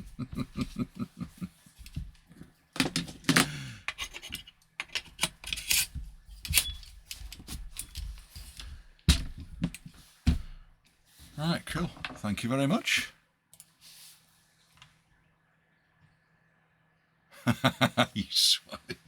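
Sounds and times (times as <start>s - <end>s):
airsoft rifle being handled: 1.8s - 10.4s.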